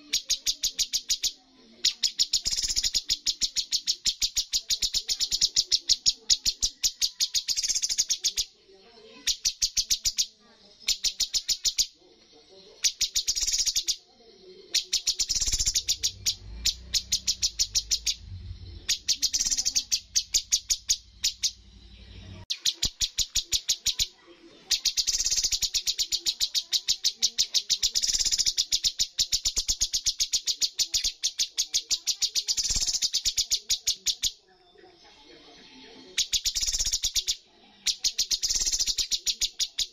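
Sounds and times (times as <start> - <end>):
bird singing sharp repeated notes: 0.0 - 12.0, 12.7 - 14.0, 14.6 - 34.4, 36.0 - 39.9
low steady hum: 17.5 - 18.9.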